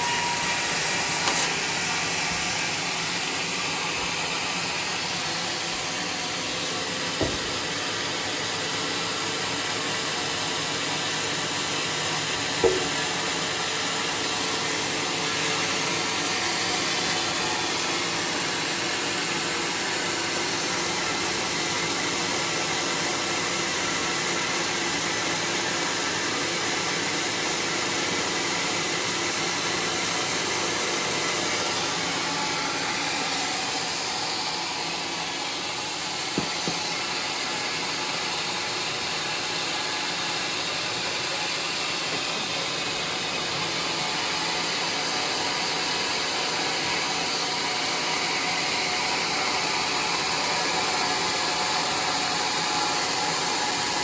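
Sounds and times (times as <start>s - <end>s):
sawmill machinery hissing: 0.0s - 54.0s
knocks: 7.2s - 7.6s, 12.6s - 13.1s, 36.4s - 36.8s.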